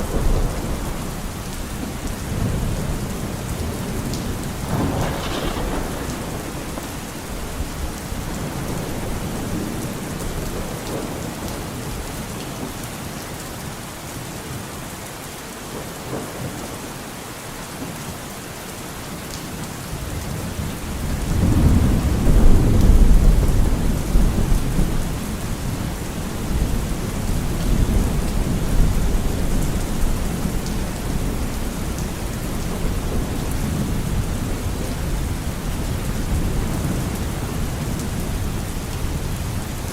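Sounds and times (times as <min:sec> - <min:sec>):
rolling thunder rumble: 0:00.0 - 0:12.0, 0:20.0 - 0:39.9
steady rain falling: 0:00.0 - 0:39.9.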